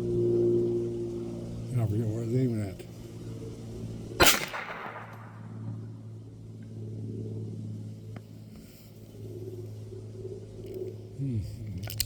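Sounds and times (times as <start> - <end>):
steady low hum: 0.0 - 12.0
pistol shot: 4.2 - 5.6.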